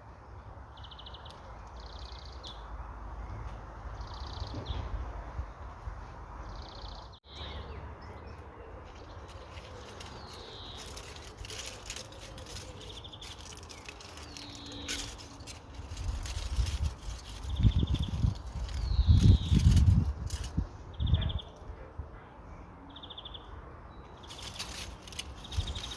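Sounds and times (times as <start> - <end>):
small birds chirping and trilling: 0.2 - 21.7, 22.9 - 25.9
light clicks and rustles: 8.9 - 20.6, 24.2 - 25.9
wind on microphone: 15.8 - 21.6.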